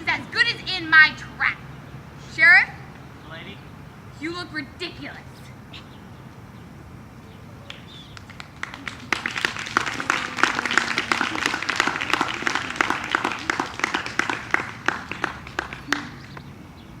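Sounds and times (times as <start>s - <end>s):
audience applauding: 7.6s - 16.5s.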